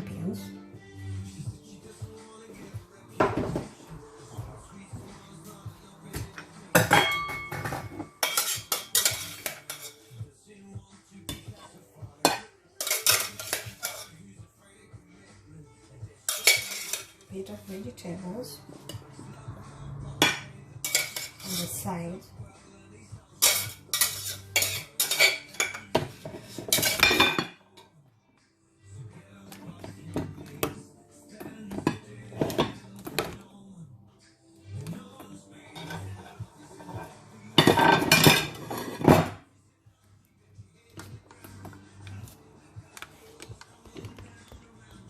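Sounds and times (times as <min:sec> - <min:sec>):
metal utensils clinking on dishes: 0:06.7 - 0:10.2, 0:12.2 - 0:14.2, 0:16.3 - 0:17.3, 0:20.2 - 0:21.8, 0:23.4 - 0:27.9, 0:31.7 - 0:33.4, 0:35.7 - 0:39.4.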